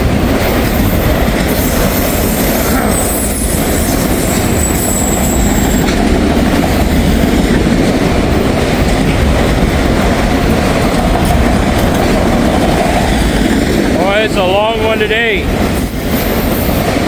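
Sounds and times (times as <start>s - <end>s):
train wheels rumbling on rail: 0.0s - 17.0s
high wheel squeal: 0.8s - 6.0s.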